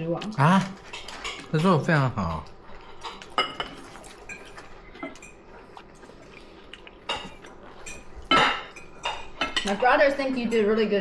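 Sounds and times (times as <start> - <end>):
cutlery clinking on plates: 3.0 - 5.4, 7.0 - 10.0.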